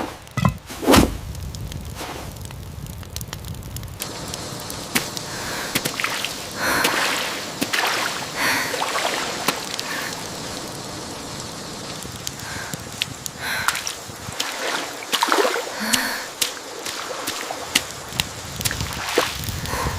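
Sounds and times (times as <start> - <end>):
rain falling: 0.0 - 19.9
water splashing and sloshing: 5.7 - 10.6, 12.9 - 19.4.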